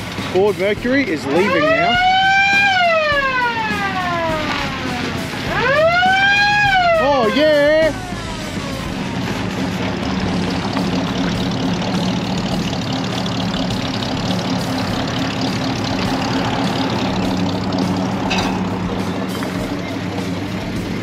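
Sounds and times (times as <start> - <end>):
car engine idling rumble: 0.0 - 21.0.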